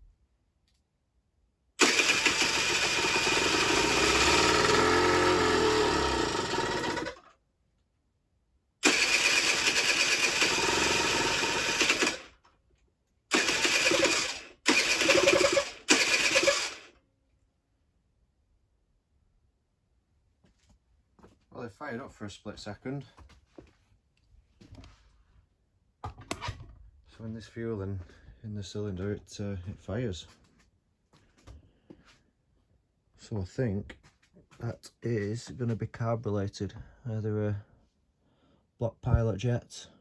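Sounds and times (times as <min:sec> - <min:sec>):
electric starter cranking engine: 0:01.8 - 0:07.3, 0:08.8 - 0:12.4, 0:13.3 - 0:16.9
engine briefly firing: 0:01.8 - 0:07.3, 0:08.8 - 0:12.3, 0:13.3 - 0:16.9.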